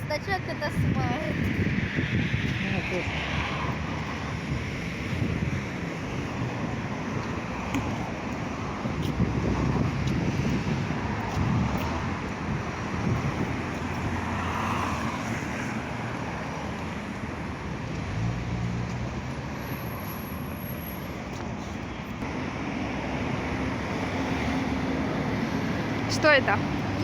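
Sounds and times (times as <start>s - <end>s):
wind buffeting microphone: 0.0s - 19.6s
street traffic: 0.0s - 27.0s.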